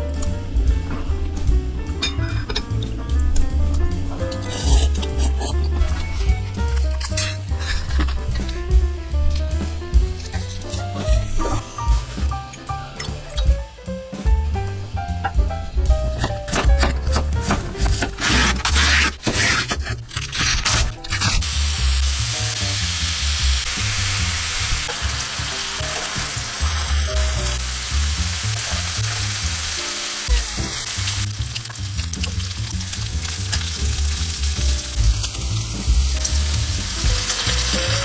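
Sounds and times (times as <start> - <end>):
pork sizzling in a hot pan: 20.6 - 38.0.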